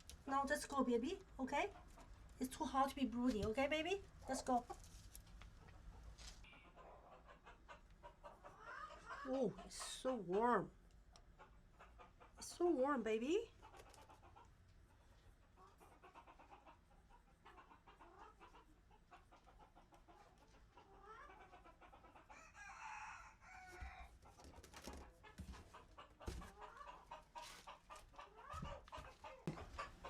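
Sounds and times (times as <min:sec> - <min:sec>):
chickens clucking: 0:04.3 - 0:12.5, 0:13.5 - 0:30.0
chicken drawn-out call: 0:06.4 - 0:09.6, 0:15.6 - 0:24.2, 0:25.6 - 0:30.0.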